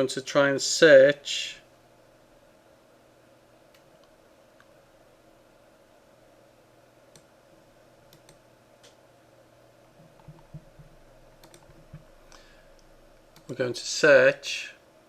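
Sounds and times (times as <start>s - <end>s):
low steady hum: 0.0s - 15.0s
computer mouse clicks: 8.1s - 9.0s, 10.0s - 13.6s
soft low knocks: 10.0s - 12.2s.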